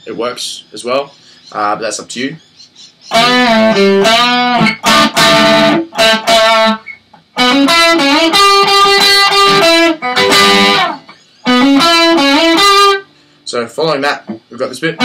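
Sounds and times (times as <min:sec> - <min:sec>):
electric guitar lead: 0:03.1 - 0:13.1.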